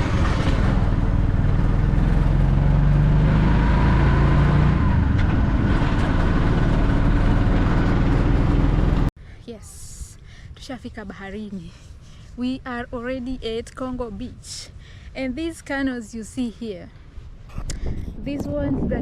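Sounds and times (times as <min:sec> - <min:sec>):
auto-rickshaw engine running: 0:00.0 - 0:09.1
wind and road noise: 0:00.0 - 0:19.0.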